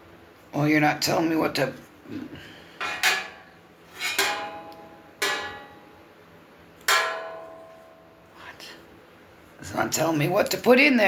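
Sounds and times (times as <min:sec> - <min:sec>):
metal grill parts clanking: 0:02.8 - 0:05.9, 0:06.8 - 0:08.0.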